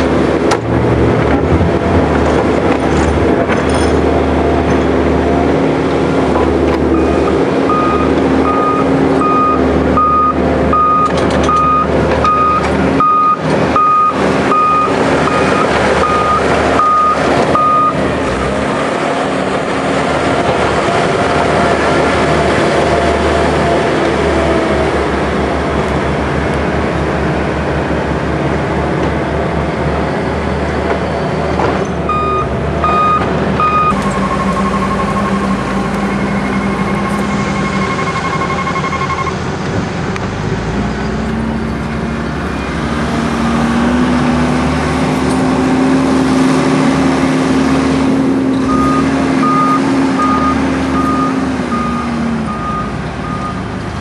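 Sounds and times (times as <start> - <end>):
tractor engine under load: 0.0 - 54.0
reversing alarm beeping: 6.9 - 18.0, 32.1 - 39.4, 48.6 - 53.7.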